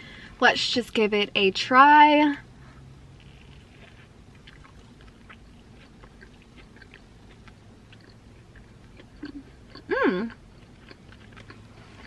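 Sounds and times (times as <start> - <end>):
low steady hum: 0.0 - 12.0
faint chewing with mouth clicks: 3.2 - 12.0.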